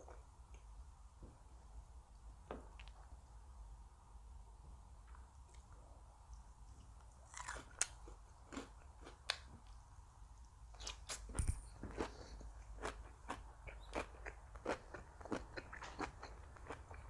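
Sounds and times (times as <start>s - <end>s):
chewing crisp food: 5.1s - 9.8s, 10.7s - 17.0s.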